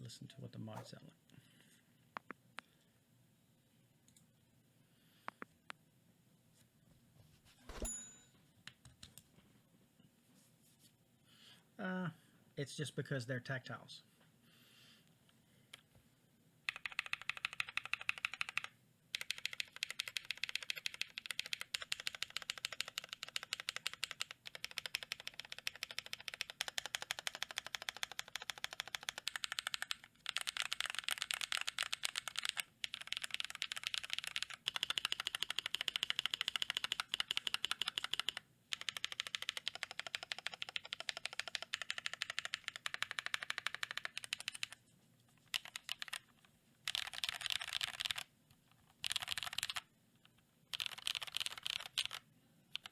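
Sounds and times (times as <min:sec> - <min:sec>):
fast mechanical keyboard typing: 0:16.7 - 0:44.8, 0:45.5 - 0:48.3, 0:48.9 - 0:49.9, 0:50.7 - 0:52.9.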